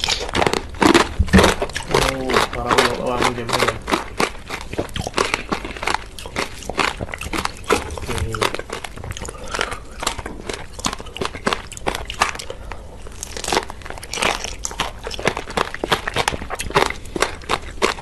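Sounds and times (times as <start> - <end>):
crunching frozen strawberries: 0.0 - 18.0.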